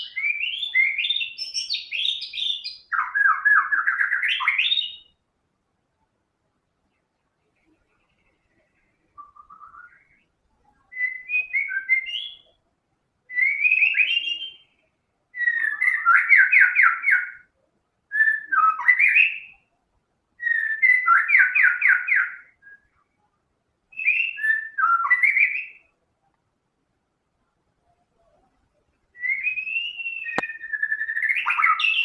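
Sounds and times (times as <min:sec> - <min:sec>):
bird singing whistled phrases: 0:00.0 - 0:05.2, 0:09.0 - 0:10.3, 0:10.9 - 0:12.6, 0:13.3 - 0:17.5, 0:18.1 - 0:19.7, 0:20.4 - 0:23.1, 0:23.9 - 0:26.0, 0:29.2 - 0:32.0.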